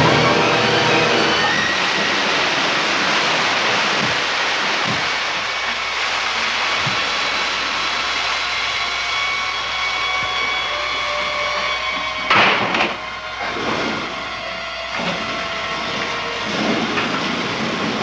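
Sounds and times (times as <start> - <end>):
music: 0.0 - 1.7
loud rushing noise: 0.0 - 8.7.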